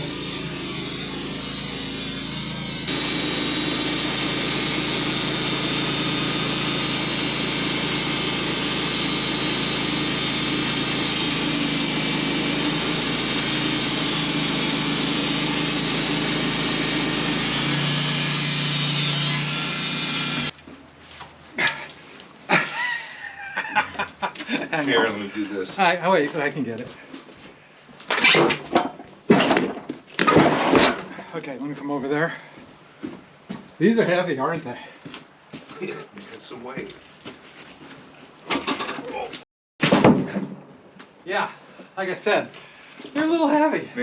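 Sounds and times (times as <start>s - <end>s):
sawmill sawing log: 0.0s - 20.5s.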